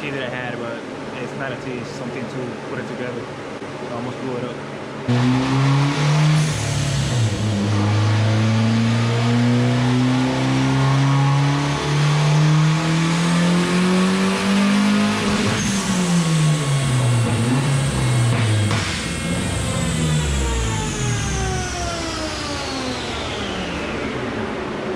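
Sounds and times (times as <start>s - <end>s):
car engine revving at full throttle: 5.0s - 24.9s.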